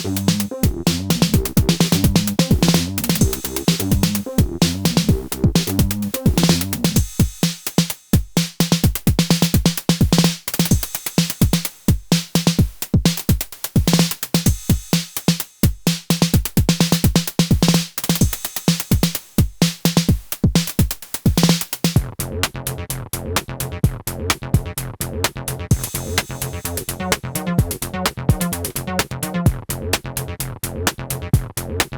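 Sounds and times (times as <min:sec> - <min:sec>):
repeated low synth note: 0:00.0 - 0:06.7
synth bass line: 0:00.0 - 0:07.0, 0:26.0 - 0:29.6
hi-hats: 0:00.0 - 0:22.1, 0:25.7 - 0:29.5
drum machine beat: 0:00.0 - 0:22.5, 0:25.7 - 0:30.1, 0:30.9 - 0:31.9.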